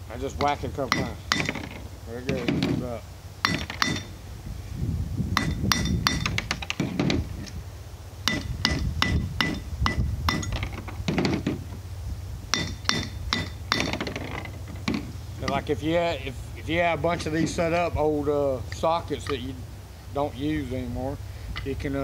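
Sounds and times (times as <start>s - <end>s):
low steady hum: 0.0s - 22.0s
metal molds clinking: 0.2s - 4.2s, 5.4s - 7.6s, 8.3s - 11.8s, 12.5s - 16.0s, 16.6s - 17.9s, 18.7s - 19.6s, 21.5s - 21.9s.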